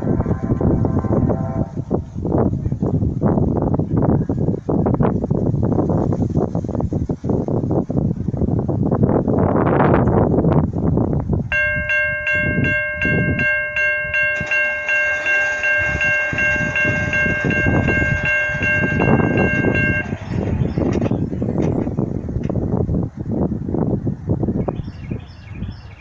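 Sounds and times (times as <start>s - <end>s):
train horn chord: 0.0s - 2.0s, 11.5s - 20.9s
train rumbling on rails: 0.0s - 26.0s.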